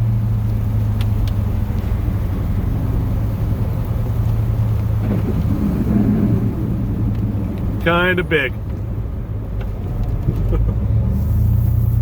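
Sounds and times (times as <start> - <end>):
truck engine humming: 0.0 - 12.0.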